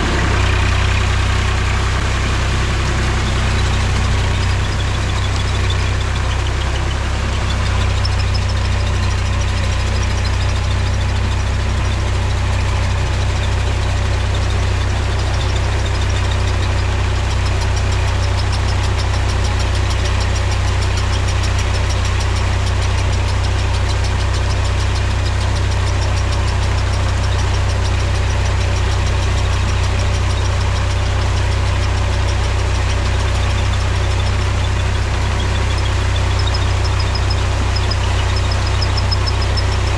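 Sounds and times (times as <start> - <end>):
tractor diesel engine drone: 0.0 - 39.9.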